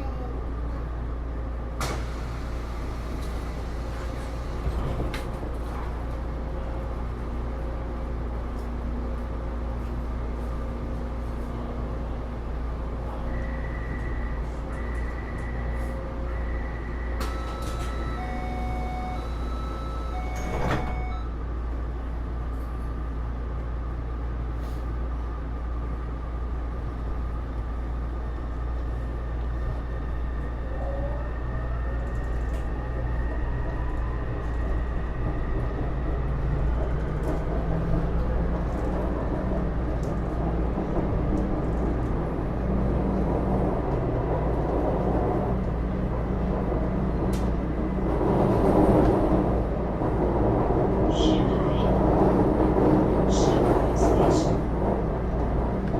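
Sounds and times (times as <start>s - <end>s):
train motor and running noise: 0.0s - 55.9s
train inverter whine rising: 13.1s - 22.2s
door chime: 17.3s - 21.3s
sliding doors shutting with thud: 20.2s - 21.2s.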